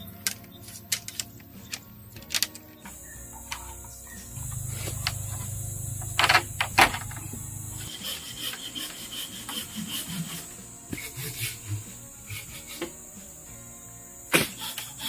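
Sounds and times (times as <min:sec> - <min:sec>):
rubbing or scraping on wood: 0:07.8 - 0:11.7.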